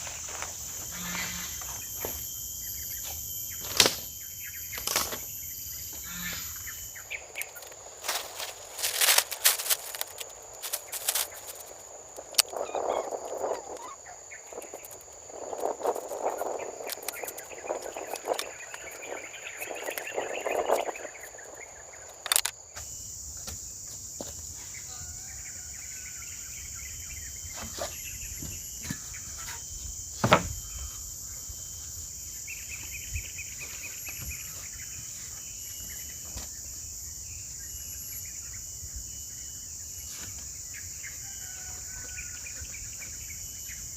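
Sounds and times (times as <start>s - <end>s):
insects chirring: 0.0s - 43.9s.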